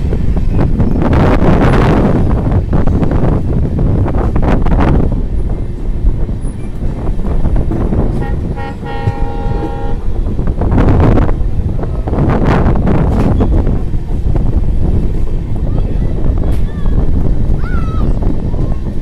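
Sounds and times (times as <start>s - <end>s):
moving train rumbling: 0.0s - 19.0s
train horn: 8.1s - 10.1s.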